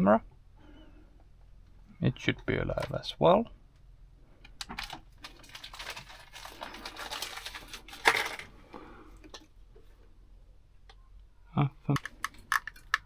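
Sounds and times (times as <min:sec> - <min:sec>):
rustling of parts handled: 0:04.4 - 0:09.9, 0:11.9 - 0:13.0.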